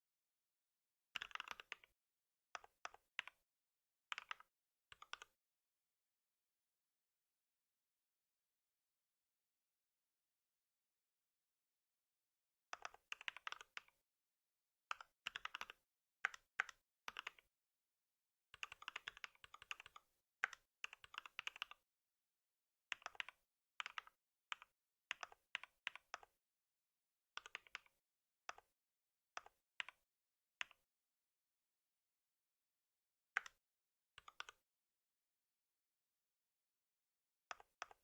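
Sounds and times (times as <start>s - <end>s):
computer keyboard typing: 1.2s - 1.9s, 4.1s - 4.4s, 12.8s - 13.9s, 15.3s - 17.4s, 18.6s - 21.7s, 27.4s - 27.9s.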